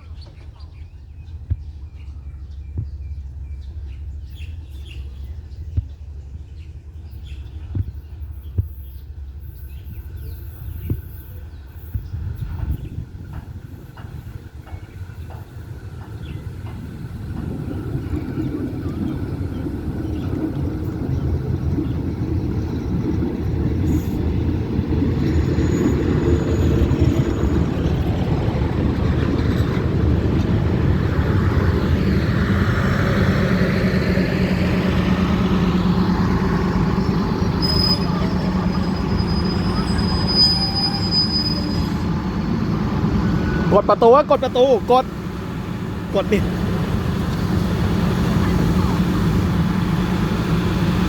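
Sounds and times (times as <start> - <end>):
train rumbling on rails: 0.0 - 51.0
high wheel squeal: 16.1 - 45.0.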